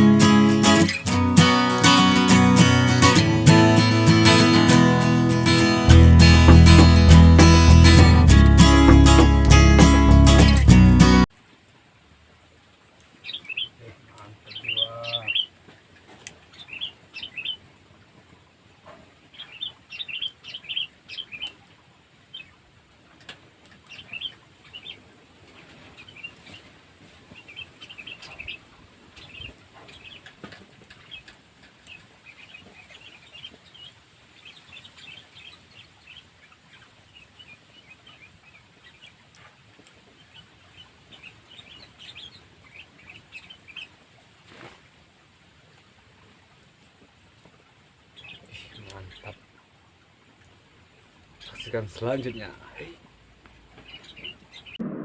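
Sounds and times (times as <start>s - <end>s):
small birds chirping: 13.2s - 15.5s, 16.2s - 17.6s, 18.8s - 21.6s, 23.8s - 26.7s, 27.3s - 44.7s, 48.1s - 49.7s, 50.4s - 55.0s.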